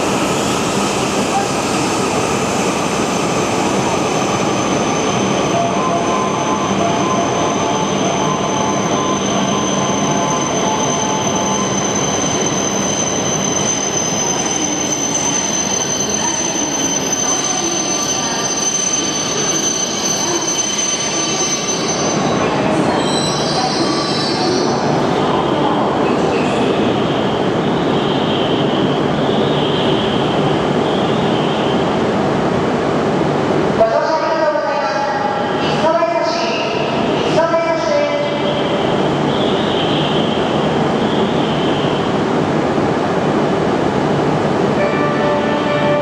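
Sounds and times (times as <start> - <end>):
train running noise: 0.0 - 46.0
high brake squeal: 4.6 - 25.0.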